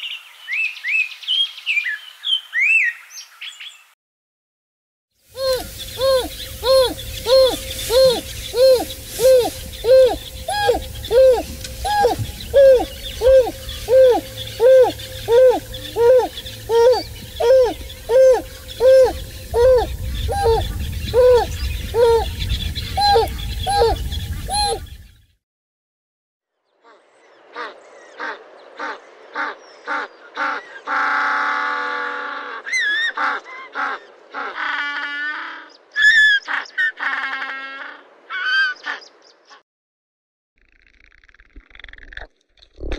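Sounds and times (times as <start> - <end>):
higher-pitched hooting caller: 5.4 - 24.9
wild dog hooting calls: 5.4 - 24.9
low rumble: 5.4 - 25.2.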